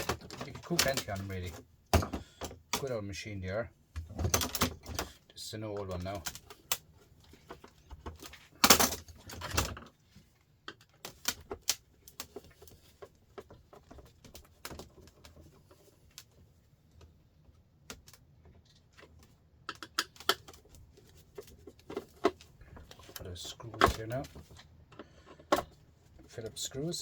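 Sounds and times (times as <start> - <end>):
small clicks and taps: 17.8 - 25.8.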